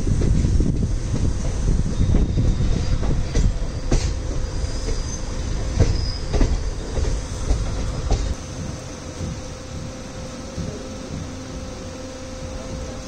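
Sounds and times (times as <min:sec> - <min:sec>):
wheels clacking over rail joints: 0:00.0 - 0:10.0
train low rumble: 0:00.0 - 0:13.0
faint high wheel squeal: 0:01.8 - 0:07.4.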